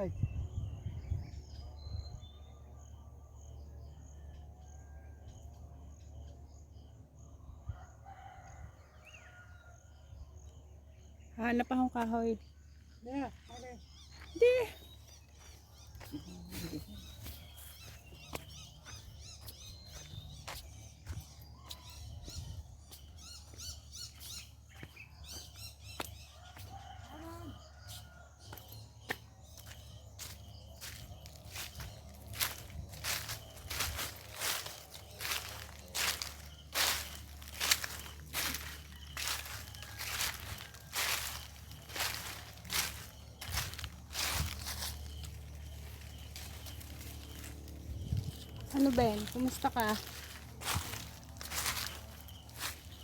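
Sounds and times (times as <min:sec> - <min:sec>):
low wind rumble: 0:00.0 - 0:03.5, 0:31.0 - 0:53.0
insects chirping: 0:09.3 - 0:26.1, 0:26.8 - 0:53.0.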